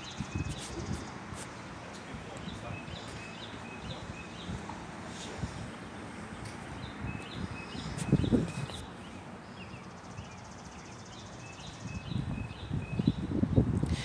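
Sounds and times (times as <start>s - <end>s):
songbird chirping: 0.0s - 13.7s
steady outdoor hiss: 0.0s - 14.0s.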